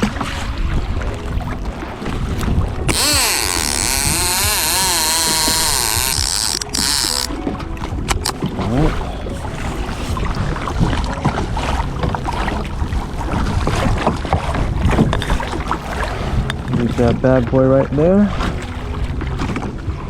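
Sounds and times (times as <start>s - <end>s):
water slapping against kayak hull: 0.0s - 20.0s.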